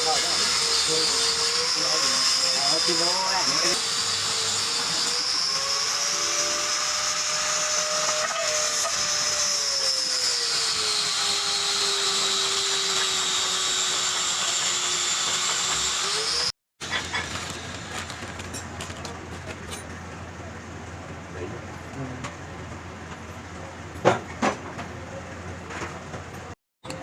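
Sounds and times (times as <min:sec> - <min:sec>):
power tool motor whining: 0:00.0 - 0:18.4
workshop noise: 0:00.0 - 0:27.0.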